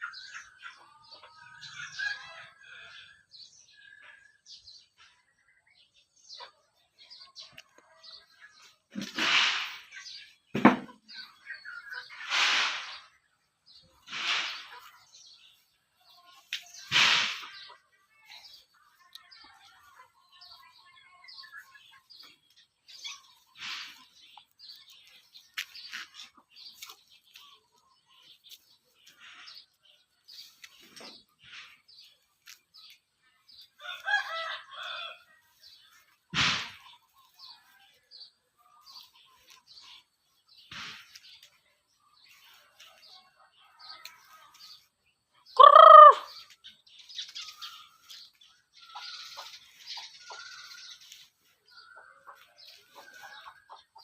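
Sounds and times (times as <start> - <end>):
chickens clucking: 0.0 - 54.0
taps and clicks of feeding chickens: 7.2 - 13.0, 14.1 - 17.9, 18.9 - 29.4, 30.3 - 35.0, 42.8 - 44.9, 47.2 - 54.0
loud short chicken call: 45.6 - 46.4.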